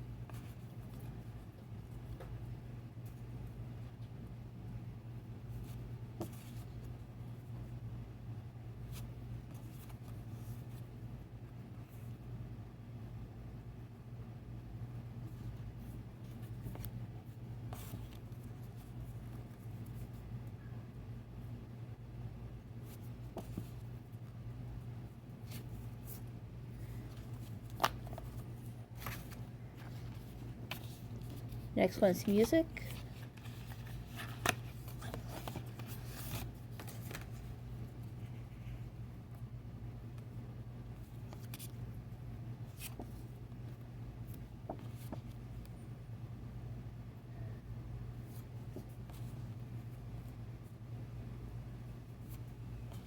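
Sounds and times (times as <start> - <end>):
steady low hum: 0.0 - 53.0
paper pages rustling: 15.8 - 20.2, 25.4 - 38.8, 42.6 - 45.4.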